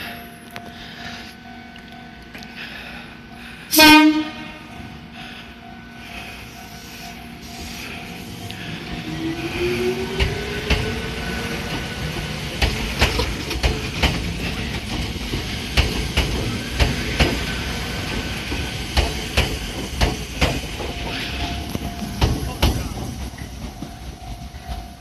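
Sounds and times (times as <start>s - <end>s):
train rumble: 0.0s - 25.0s
wheels clacking over rail joint: 10.1s - 25.0s.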